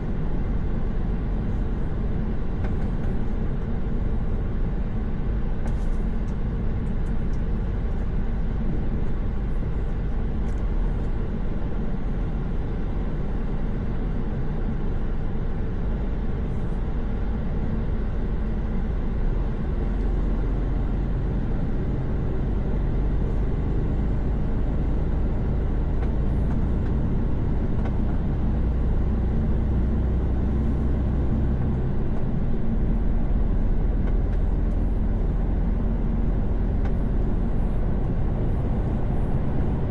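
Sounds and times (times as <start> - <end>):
truck diesel engine cruising: 0.0 - 39.9.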